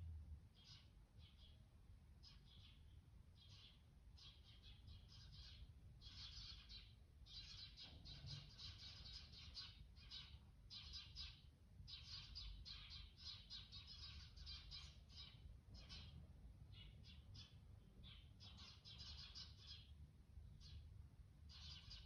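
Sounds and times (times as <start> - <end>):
small birds chirping: 0.4 - 22.0.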